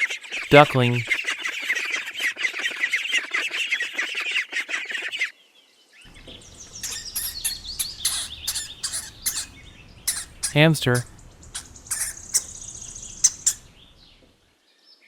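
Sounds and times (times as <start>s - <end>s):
ducklings peeping: 6.1s - 14.3s
sharp clicks: 6.1s - 14.3s.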